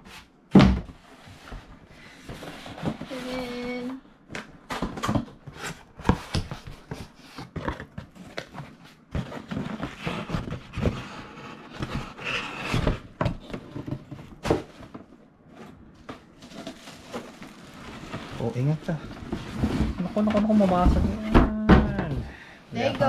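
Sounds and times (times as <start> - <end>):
packaging rustling and scraping: 0.9 - 3.9, 4.7 - 21.2
knocks and thumps: 19.1 - 22.3.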